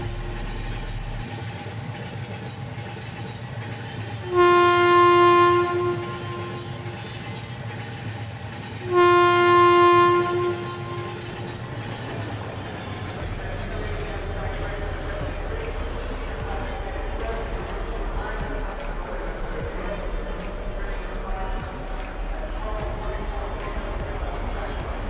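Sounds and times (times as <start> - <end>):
train horn blasts: 0.0 - 1.2, 4.2 - 7.9, 8.8 - 12.1
train running noise: 0.0 - 25.0.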